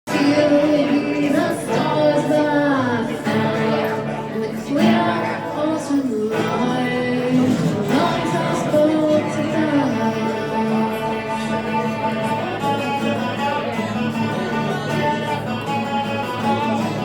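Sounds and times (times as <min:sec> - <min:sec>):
person singing: 0:00.1 - 0:17.0
live rock band playing: 0:06.2 - 0:17.0.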